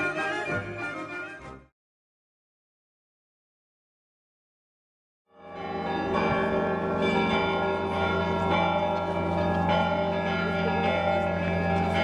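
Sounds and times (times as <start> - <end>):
church bells ringing: 5.4 - 12.0.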